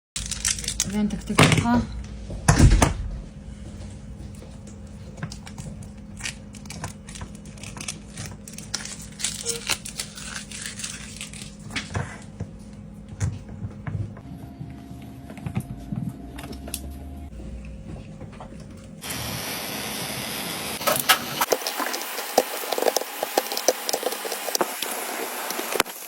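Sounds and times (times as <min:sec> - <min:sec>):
steady low hum: 0:00.2 - 0:26.0.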